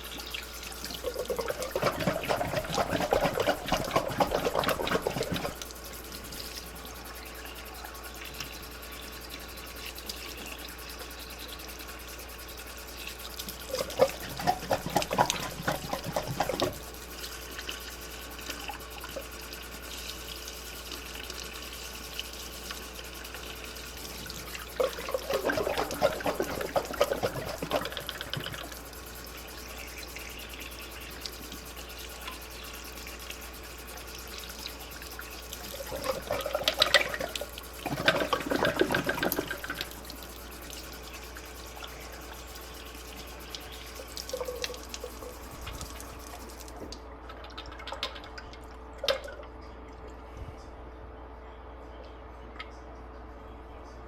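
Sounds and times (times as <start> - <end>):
water splashes: 0.0 - 6.8, 13.4 - 17.7, 22.8 - 28.8, 35.2 - 41.3
sink tap running: 0.0 - 47.0.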